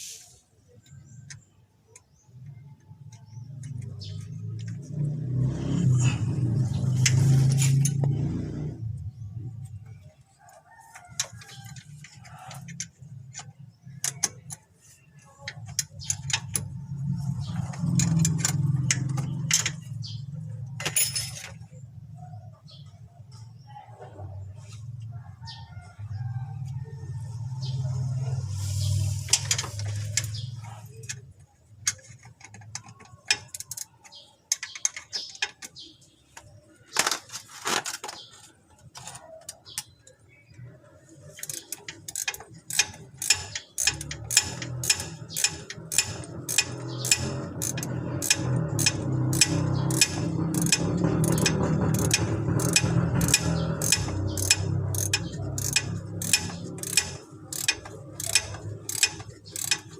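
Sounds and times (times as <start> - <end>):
ratchet wrench clicking: 11.2 - 14.6, 15.6 - 19.9, 29.2 - 30.4, 31.8 - 33.9, 41.3 - 59.9.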